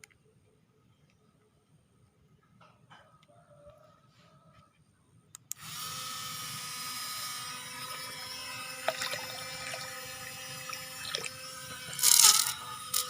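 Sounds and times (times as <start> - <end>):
small electric motor whining: 5.5 - 13.0
propeller churning water: 7.6 - 12.2.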